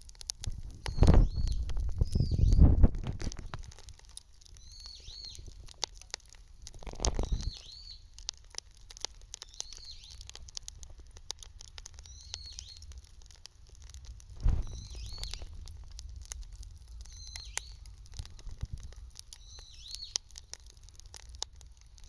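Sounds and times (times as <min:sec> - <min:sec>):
bonfire crackling and popping: 0:00.0 - 0:22.0
bird calling: 0:14.6 - 0:15.5.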